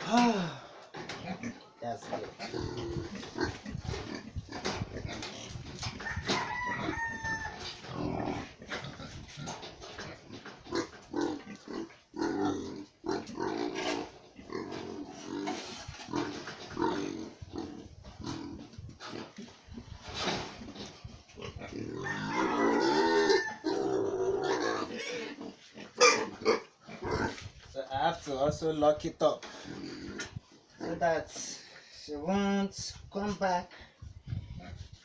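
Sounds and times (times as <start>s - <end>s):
pig grunting: 0.0s - 6.0s, 7.6s - 27.6s, 29.4s - 31.0s.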